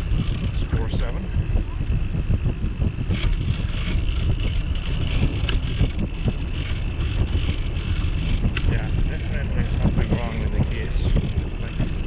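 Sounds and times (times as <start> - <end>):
low uneven riding rumble: 0.0 - 12.0
wind buffeting microphone: 0.0 - 12.0.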